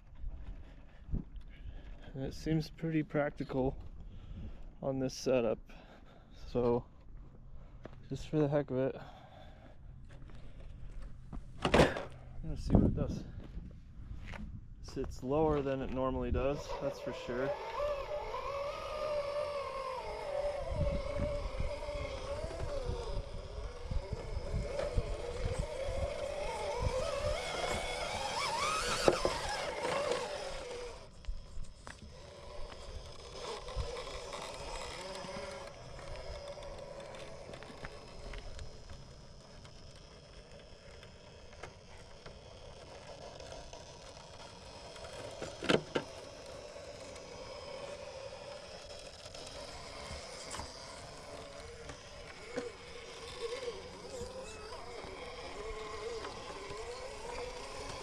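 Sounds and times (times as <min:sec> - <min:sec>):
electric motor whining: 0:15.3 - 0:58.0
tyres clicking on rock: 0:18.7 - 0:58.0.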